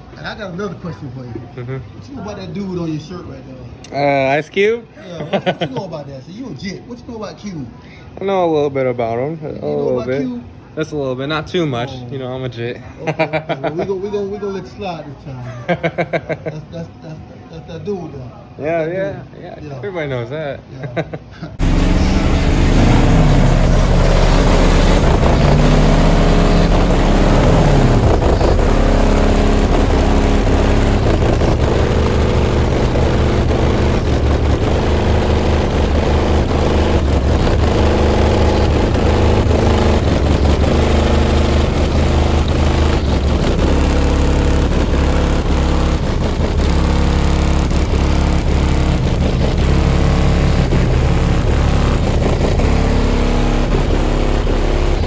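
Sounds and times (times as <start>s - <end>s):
bass-heavy music through subwoofers: 21.6s - 55.0s.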